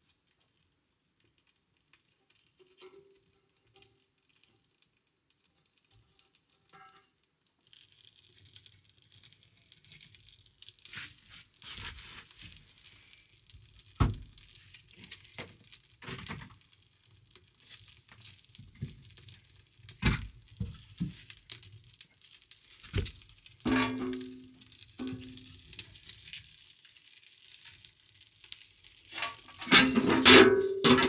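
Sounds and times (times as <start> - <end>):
food wrapping crinkling and tearing: 7.5 - 29.7.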